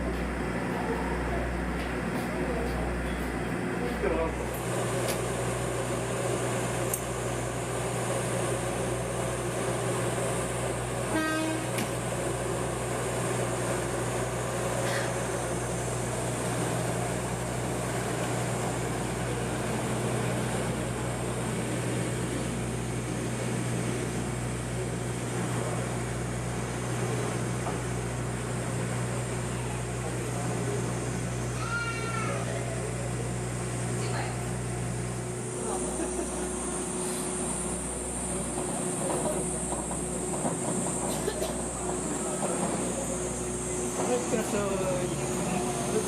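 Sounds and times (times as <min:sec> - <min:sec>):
train running on rails: 0:00.0 - 0:46.0
train horn toot: 0:11.1 - 0:11.9.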